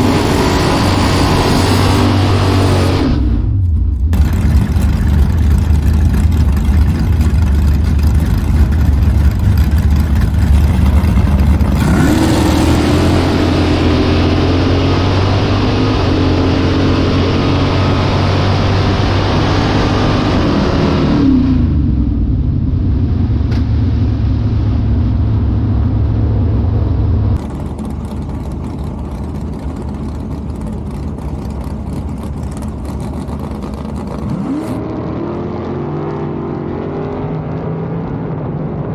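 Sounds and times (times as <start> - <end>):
drag race cars accelerating: 0.0 - 22.2, 23.3 - 38.9
low engine idle: 3.4 - 13.9, 22.2 - 34.2.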